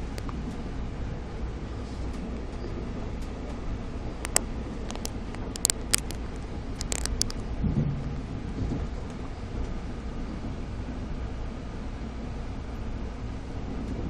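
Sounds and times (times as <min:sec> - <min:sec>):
train rumble and hiss: 0:00.0 - 0:05.4, 0:07.4 - 0:14.0
sharp clicks: 0:04.2 - 0:07.4.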